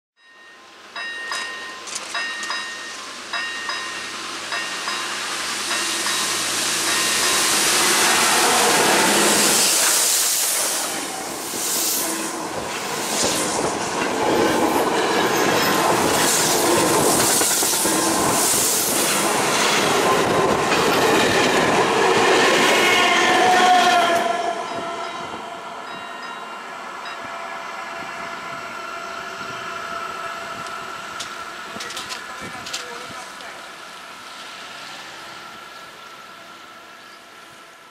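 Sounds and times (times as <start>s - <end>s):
steam locomotive passing: 0.2s - 37.9s
wheels clattering on rail joints: 1.0s - 5.0s, 30.6s - 33.6s
carriages rolling: 31.2s - 33.7s.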